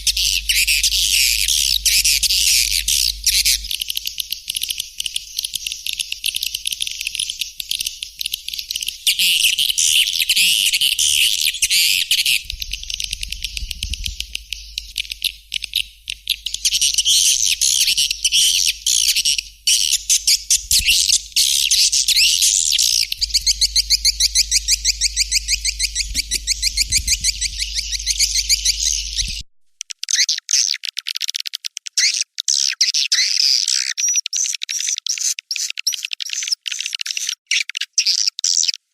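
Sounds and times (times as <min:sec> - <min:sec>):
swiftlets twittering: 0:00.0 - 0:29.4.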